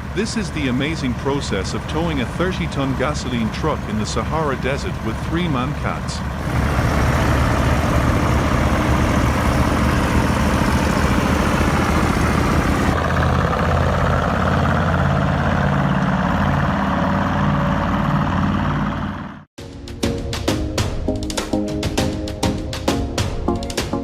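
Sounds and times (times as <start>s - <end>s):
diesel truck engines running hard: 0.0s - 19.5s.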